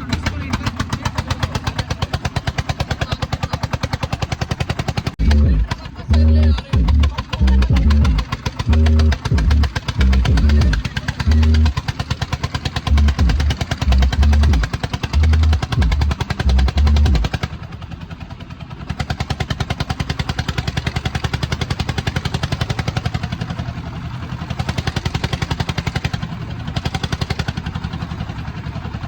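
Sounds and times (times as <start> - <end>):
tractor diesel engine running: 0.0 - 29.0
heavy low thumps: 5.2 - 11.7, 12.9 - 17.2.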